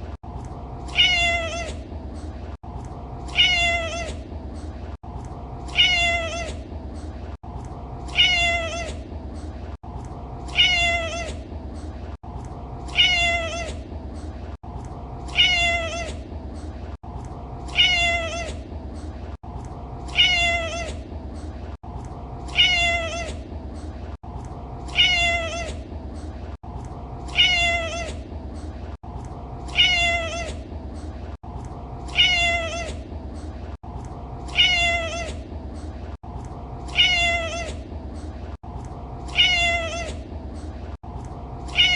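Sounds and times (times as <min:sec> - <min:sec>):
cat meowing: 0:00.9 - 0:01.8, 0:03.3 - 0:04.2, 0:05.7 - 0:06.6, 0:08.1 - 0:09.0, 0:10.5 - 0:11.4, 0:12.9 - 0:13.8, 0:15.3 - 0:16.2, 0:17.7 - 0:18.6, 0:20.1 - 0:21.0, 0:22.5 - 0:23.4, 0:24.9 - 0:25.8, 0:27.3 - 0:28.2, 0:29.7 - 0:30.6, 0:32.1 - 0:33.0, 0:34.5 - 0:35.4, 0:36.9 - 0:37.8, 0:39.3 - 0:40.2, 0:41.7 - 0:41.9.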